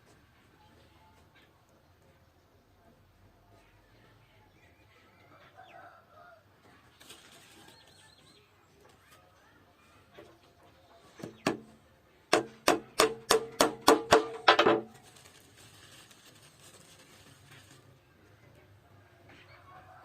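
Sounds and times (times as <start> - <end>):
hammer striking wood: 11.2 - 11.7, 12.3 - 14.9.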